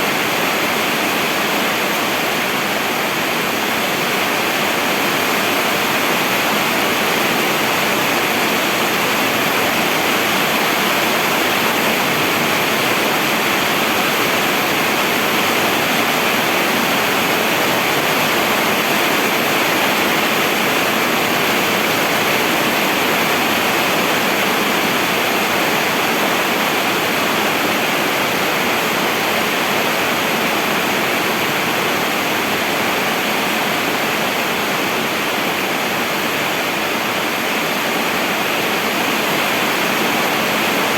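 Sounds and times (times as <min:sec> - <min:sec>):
heavy rainfall: 0:00.0 - 0:40.9.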